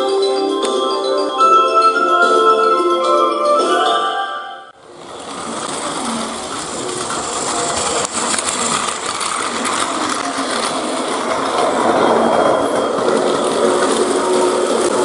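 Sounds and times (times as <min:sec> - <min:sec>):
wheels clattering on plastic track: 0:04.8 - 0:15.0
toy train motor whirring: 0:04.9 - 0:15.0.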